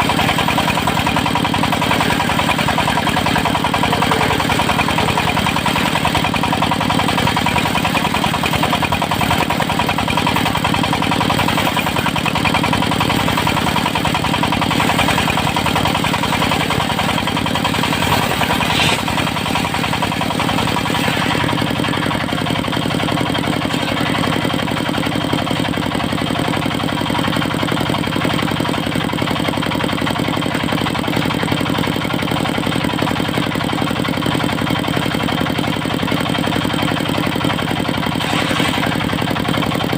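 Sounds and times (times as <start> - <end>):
sawmill diesel engine running: 0.0 - 39.9.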